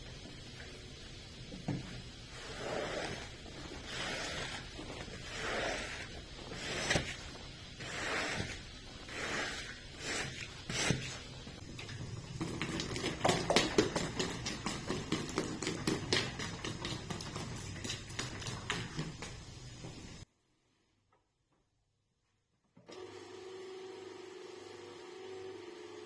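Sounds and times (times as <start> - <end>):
brush scrubbing carpet: 2.3 - 11.4.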